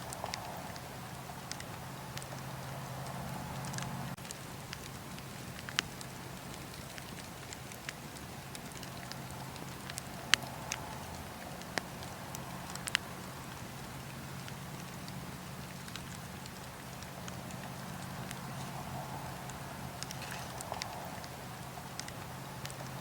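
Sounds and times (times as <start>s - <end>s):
fire crackling and popping: 0.0s - 23.0s
low rush of flame: 0.0s - 23.0s.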